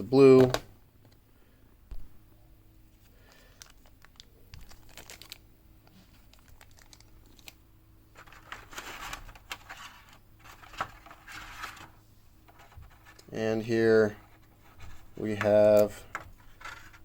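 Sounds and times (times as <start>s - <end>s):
packaging crinkling and rustling: 3.0s - 13.2s.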